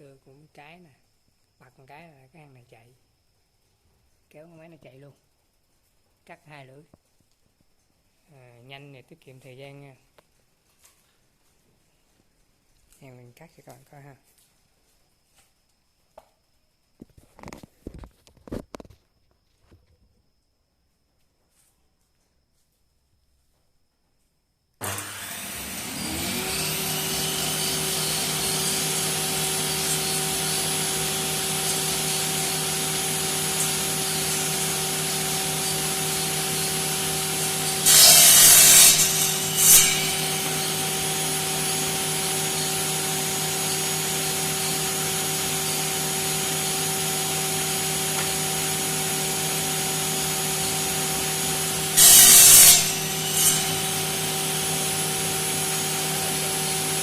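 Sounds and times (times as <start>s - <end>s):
saw blades grinding: 24.8s - 57.0s
saw motor humming and whining: 24.8s - 57.0s.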